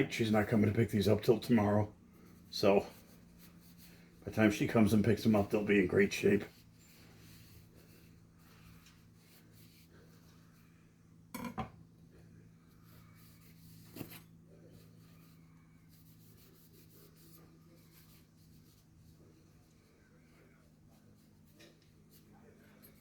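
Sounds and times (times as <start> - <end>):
faint low hum: 0.0 - 23.0
knives knocking on workbench: 11.4 - 11.8.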